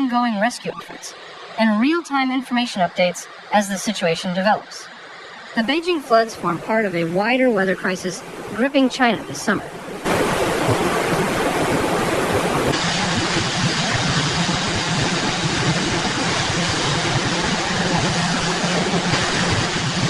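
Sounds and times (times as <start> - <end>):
loud rushing noise: 10.0 - 20.0.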